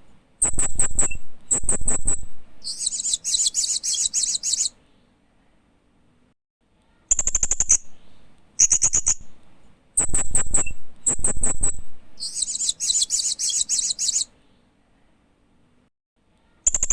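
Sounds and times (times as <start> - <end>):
parrot high-pitched chirps: 0.4 - 4.8, 7.1 - 7.9, 8.6 - 9.4, 10.0 - 14.3.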